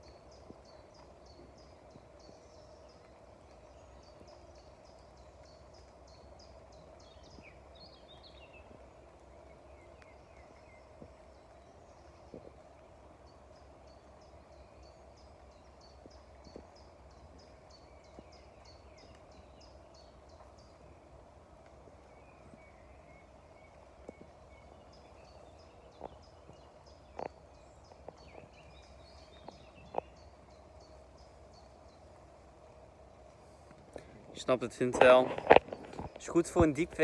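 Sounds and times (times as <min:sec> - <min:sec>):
faint steady hum: 0:00.0 - 0:37.0
lower bird chirps: 0:00.0 - 0:37.0.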